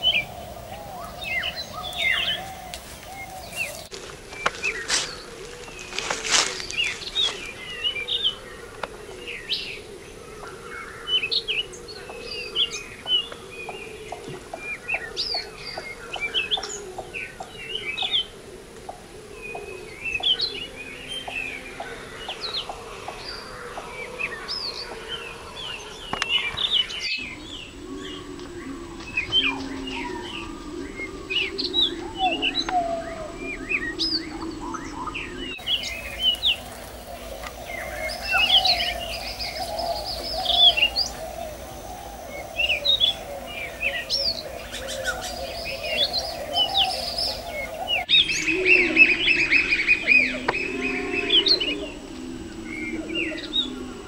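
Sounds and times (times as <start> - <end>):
wild birds chirping: 0.0 - 54.0
quick evenly spaced ticks: 35.6 - 48.1.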